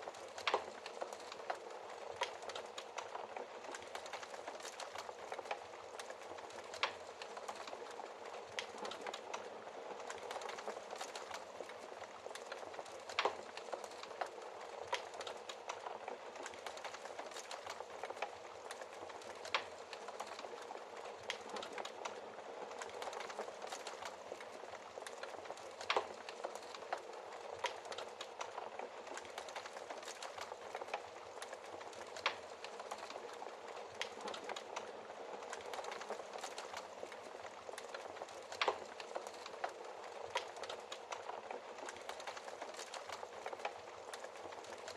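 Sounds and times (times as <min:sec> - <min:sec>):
wood fire crackling in fireplace: 0:00.0 - 0:44.9.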